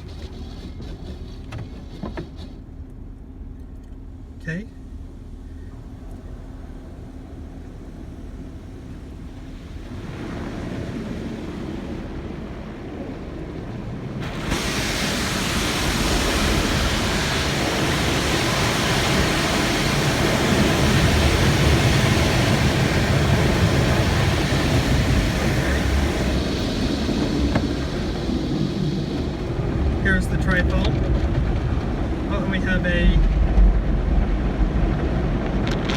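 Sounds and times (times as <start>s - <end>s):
car wash water spray hissing: 0.0s - 2.8s, 14.1s - 30.8s.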